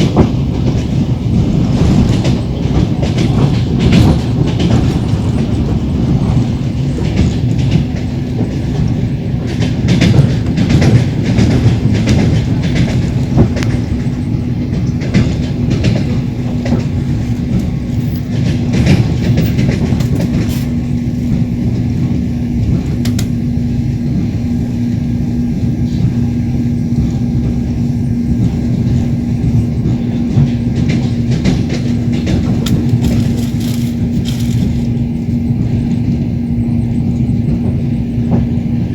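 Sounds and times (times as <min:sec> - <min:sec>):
running rumble under carriage: 0:00.0 - 0:38.9
train wheels clattering over rail joints: 0:00.0 - 0:38.9
steady low hum: 0:12.7 - 0:38.9.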